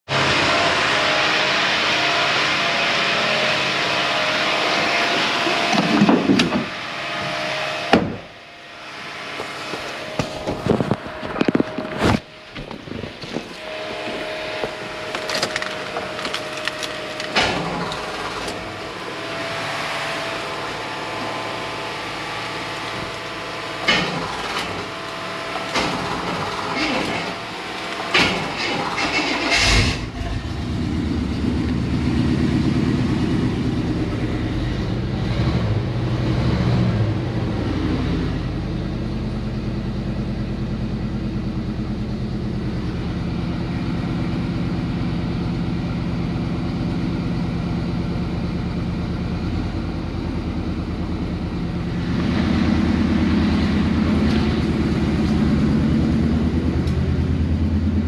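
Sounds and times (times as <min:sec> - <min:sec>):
pickup engine starting and revving: 0:00.1 - 0:58.0
sharp knocks: 0:07.9 - 0:08.3.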